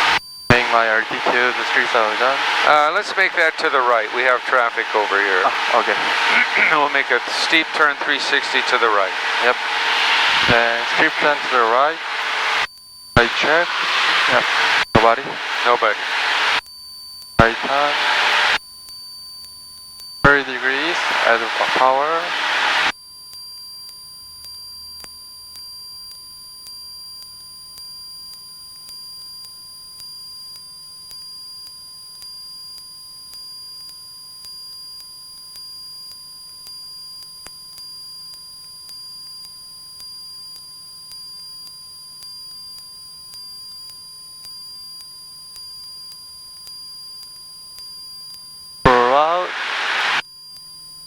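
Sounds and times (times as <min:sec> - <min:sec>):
steady electronic tone: 0:00.0 - 0:16.6, 0:17.4 - 0:18.6, 0:20.3 - 0:22.9, 0:48.9 - 0:50.2.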